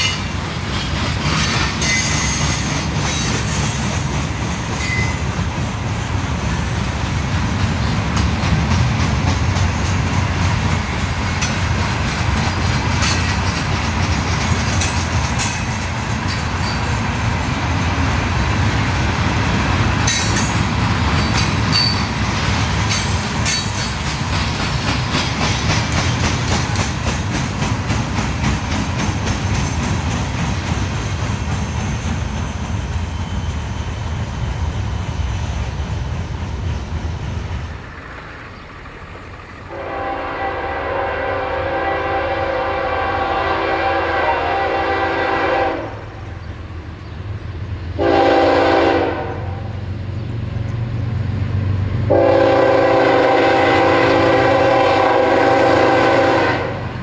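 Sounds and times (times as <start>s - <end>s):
wheels clicking over rail joints: 0.0s - 17.2s, 19.2s - 33.7s
train rumbling past: 0.0s - 57.0s
locomotive air horn chord: 39.7s - 46.0s, 48.0s - 49.7s, 52.1s - 56.9s.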